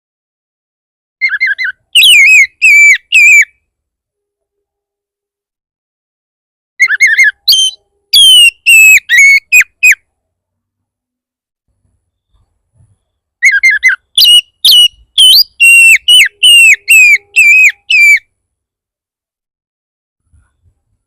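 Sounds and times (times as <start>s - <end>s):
songbird whistled song: 1.2s - 3.6s, 6.8s - 10.0s, 12.0s - 18.3s.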